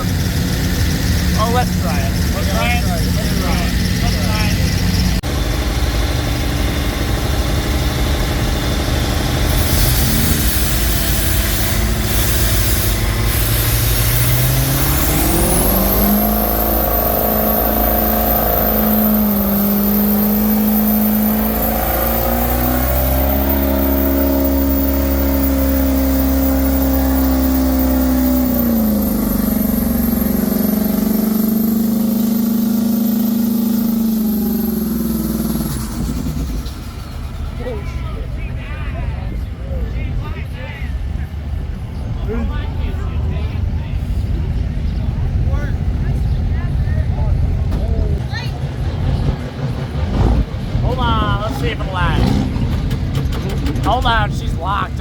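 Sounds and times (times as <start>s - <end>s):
turbo whine: 0.0s - 37.7s
diesel truck engine revving: 0.0s - 40.2s, 40.9s - 55.0s.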